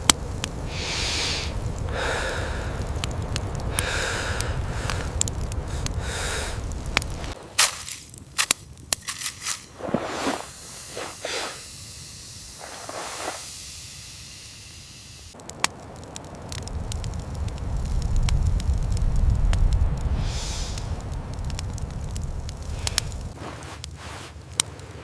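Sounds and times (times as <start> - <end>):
low rumble: 0.0 - 7.4, 15.4 - 23.4
soft whooshes of fire: 0.0 - 14.2, 15.3 - 25.0
fire crackling: 0.0 - 25.0.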